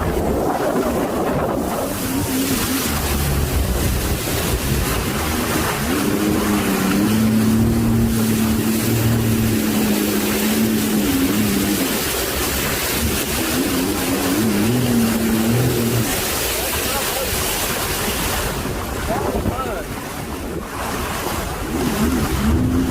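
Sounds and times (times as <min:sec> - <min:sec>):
steady droning tone: 0:00.0 - 0:16.6
churning water: 0:00.0 - 0:22.9
wind buffeting microphone: 0:00.0 - 0:22.9.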